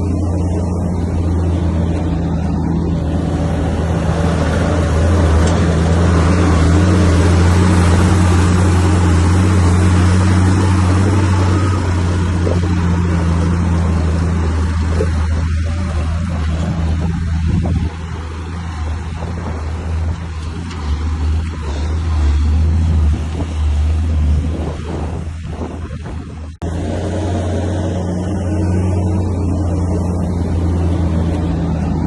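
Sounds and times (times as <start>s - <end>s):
bulldozer diesel engine running: 0.0s - 32.0s.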